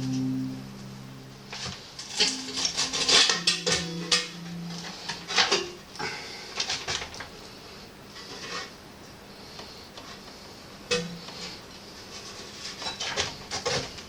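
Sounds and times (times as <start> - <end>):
metal pipe scraping and clinking: 2.0 - 5.8.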